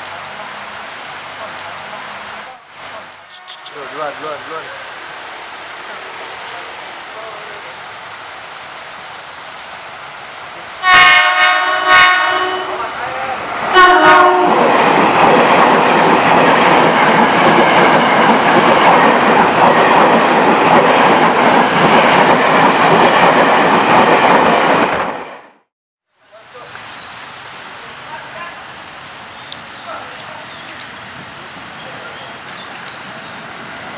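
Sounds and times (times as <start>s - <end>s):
electric train running past: 0.1s - 25.6s, 27.2s - 33.9s
train horn blasts: 3.3s - 3.9s, 10.8s - 13.0s, 13.7s - 14.6s.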